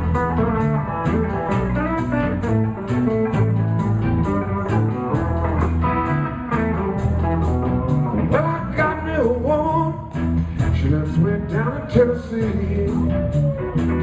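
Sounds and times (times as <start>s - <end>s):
blues band playing: 0.0s - 14.0s
lead guitar line bending notes: 0.0s - 14.0s.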